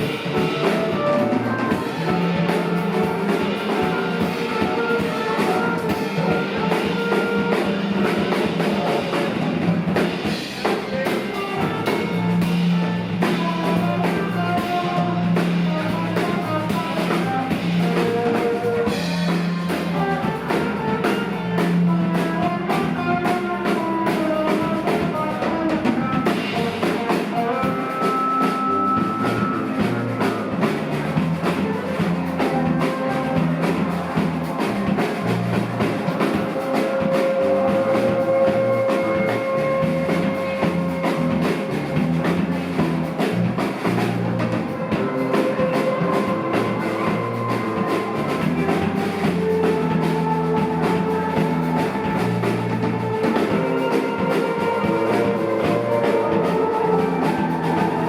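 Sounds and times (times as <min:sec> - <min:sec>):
guitar playing melody: 0:00.0 - 0:37.1
drum kit playing: 0:00.0 - 0:58.0.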